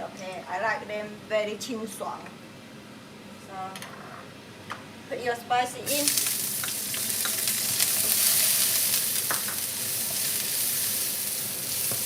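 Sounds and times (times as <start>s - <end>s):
food sizzling in hot oil: 5.8s - 12.0s.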